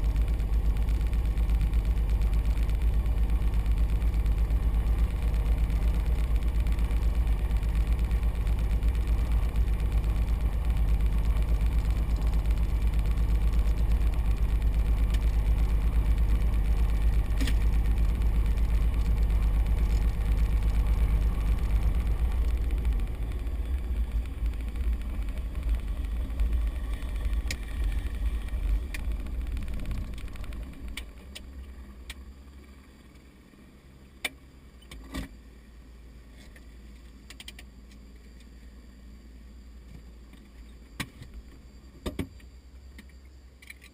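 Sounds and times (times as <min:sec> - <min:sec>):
aircraft piston engine idling: 0:00.0 - 0:33.6.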